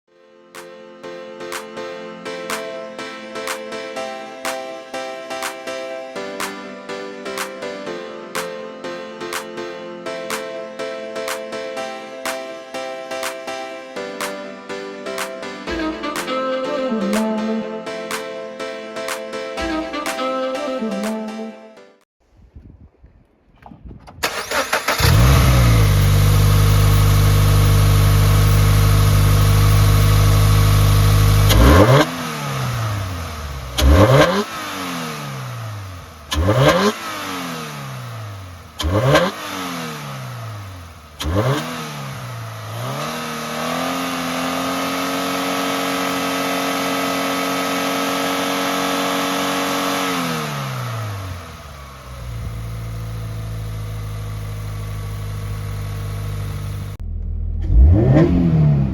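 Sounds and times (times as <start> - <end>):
car engine starting and revving: 24.2 - 58.9.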